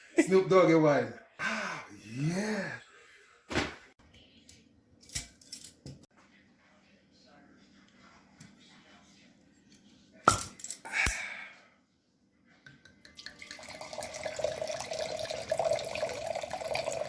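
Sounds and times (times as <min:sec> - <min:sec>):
wine pouring into a glass: 0:13.1 - 0:17.0.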